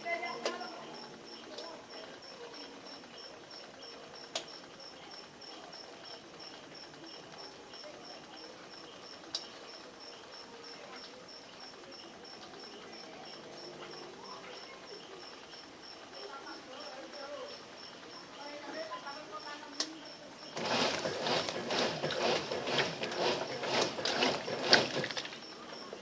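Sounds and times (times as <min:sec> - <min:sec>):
cricket chirping: 0:00.0 - 0:20.6
sharp clicks: 0:00.3 - 0:07.8, 0:08.7 - 0:16.4, 0:19.6 - 0:25.5.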